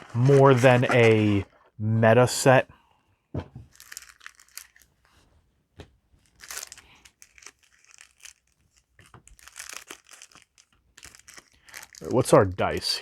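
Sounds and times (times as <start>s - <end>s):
packaging crinkling and tearing: 0.0s - 1.4s, 3.7s - 5.0s, 6.2s - 12.6s.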